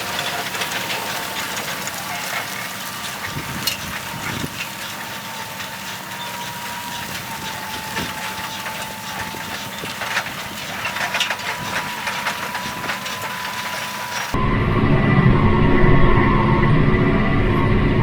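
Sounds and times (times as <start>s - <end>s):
light ticks and rattles: 0.0s - 14.4s
tractor engine running: 0.0s - 18.0s
high whine: 11.5s - 18.0s.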